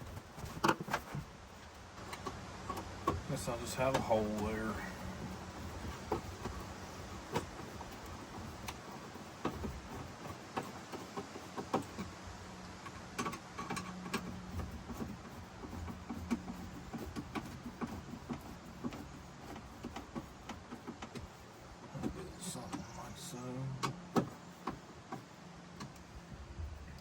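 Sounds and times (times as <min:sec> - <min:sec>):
clicks and knocks of tools: 0:04.8 - 0:22.9.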